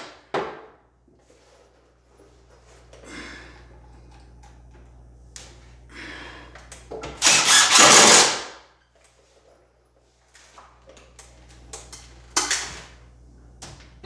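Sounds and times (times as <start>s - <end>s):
screw gun driving screws: 7.2s - 8.5s.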